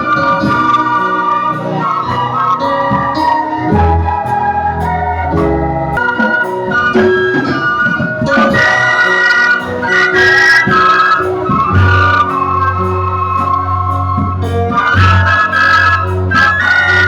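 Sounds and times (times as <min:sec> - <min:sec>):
electronic organ playing: 0:00.0 - 0:17.0.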